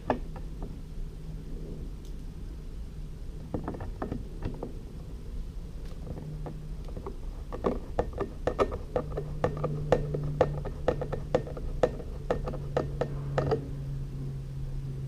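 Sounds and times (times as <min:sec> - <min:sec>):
low steady hum: 0:00.0 - 0:15.0
tools clicking and knocking: 0:03.5 - 0:04.7, 0:06.0 - 0:13.7.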